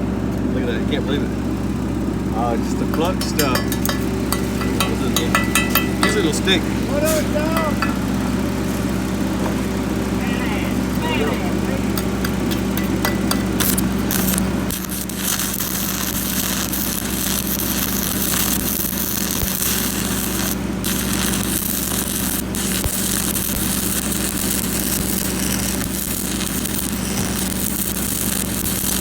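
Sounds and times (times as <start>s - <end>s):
welding machine hum: 0.0s - 29.0s
sharp welding pops: 2.9s - 8.1s, 11.9s - 29.0s
arc welding crackling hiss: 3.1s - 8.9s, 11.7s - 29.0s.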